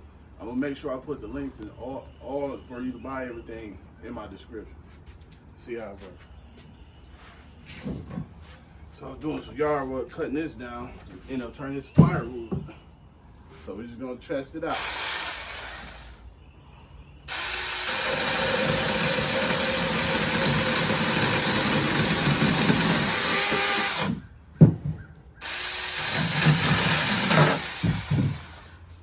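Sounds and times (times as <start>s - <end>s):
mini chainsaw cutting wood: 14.7s - 16.2s, 17.3s - 24.2s, 25.4s - 28.8s.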